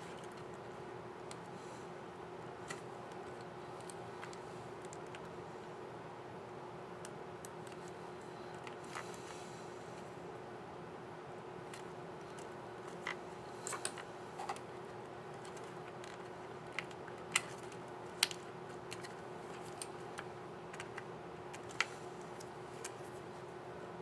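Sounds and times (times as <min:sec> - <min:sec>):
steady faint hum: 0:00.0 - 0:24.0.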